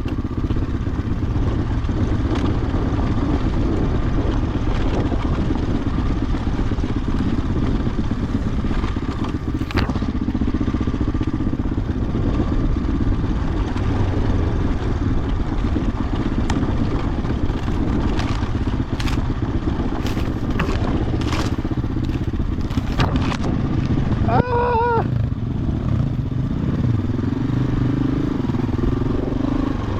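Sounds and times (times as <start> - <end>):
dirt bike engine running: 0.0 - 29.9
bike clacks and scrapes: 9.2 - 10.0, 17.1 - 23.5.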